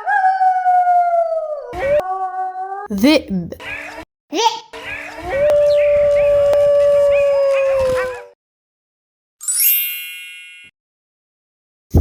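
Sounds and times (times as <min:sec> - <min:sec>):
wolf howling: 0:00.0 - 0:02.9, 0:05.3 - 0:08.4.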